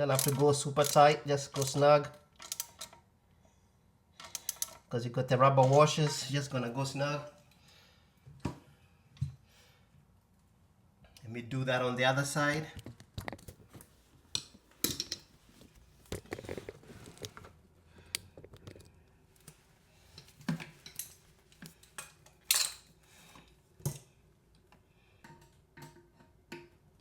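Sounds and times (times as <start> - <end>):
metal hand tools clinking: 0.1 - 2.9.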